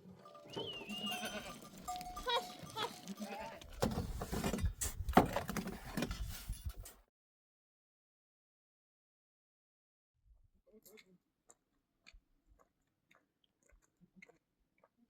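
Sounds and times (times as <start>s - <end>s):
sheep and goats bleating: 0.2s - 3.8s.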